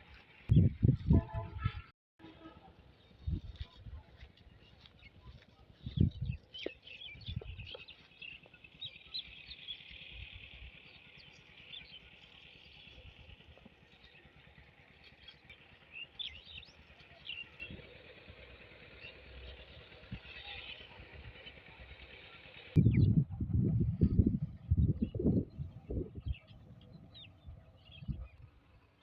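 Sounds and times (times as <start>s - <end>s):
birds chirping: 2.6s - 23.2s, 23.9s - 29.0s.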